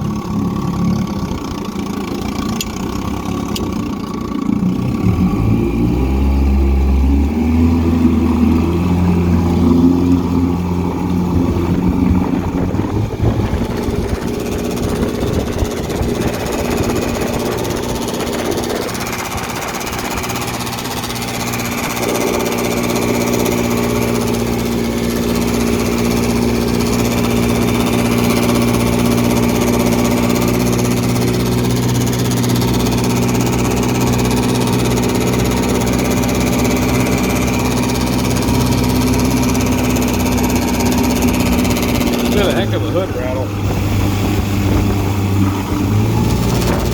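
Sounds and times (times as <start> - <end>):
outboard motor running: 0.0 - 46.9
engine hood rattle: 11.0 - 46.9.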